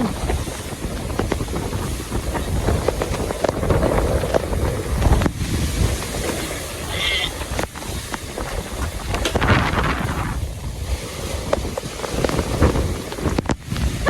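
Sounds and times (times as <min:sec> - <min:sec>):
heavy rain: 0:00.0 - 0:09.0
wind buffeting microphone: 0:00.0 - 0:14.0.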